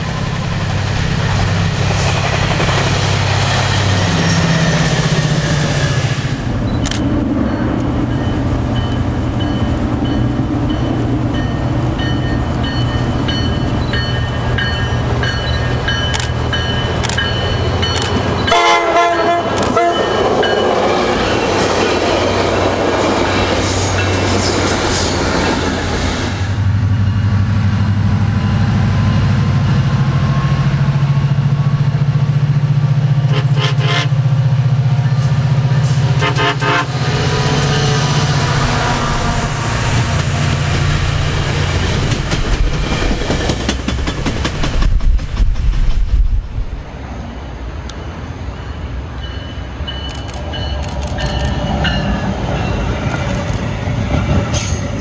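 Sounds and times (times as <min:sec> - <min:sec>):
diesel train passing: 0:00.0 - 0:55.0
train rumbling: 0:00.0 - 0:55.0
train horn: 0:18.5 - 0:20.6, 0:33.2 - 0:34.3, 0:36.0 - 0:40.2.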